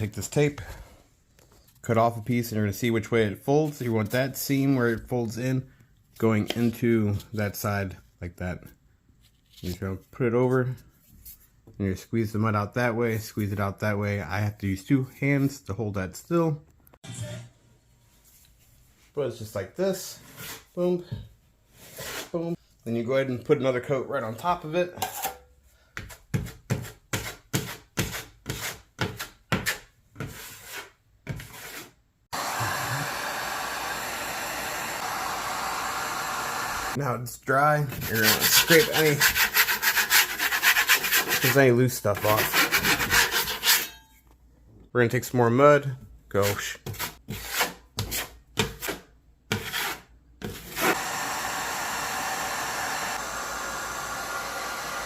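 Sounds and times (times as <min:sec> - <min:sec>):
taping knife scraping joint compound: 0:20.2 - 0:20.8, 0:21.8 - 0:22.6, 0:26.0 - 0:32.0, 0:37.9 - 0:44.1, 0:46.4 - 0:51.0.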